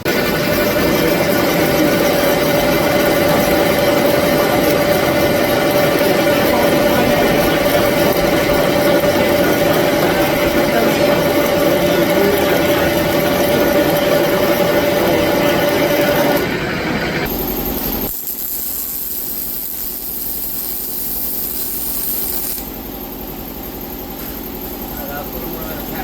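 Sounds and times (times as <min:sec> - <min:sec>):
power tool cutting steel tube: 0:00.0 - 0:26.0
steady shop noise: 0:00.0 - 0:26.0.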